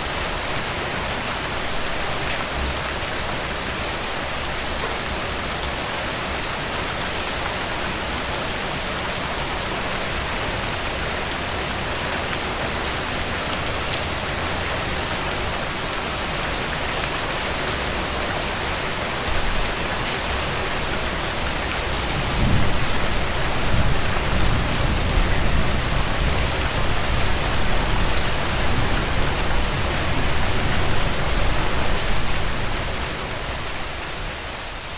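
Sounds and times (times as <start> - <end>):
rain falling on a tent: 0.0 - 34.9
thunder rumbling: 22.0 - 32.8.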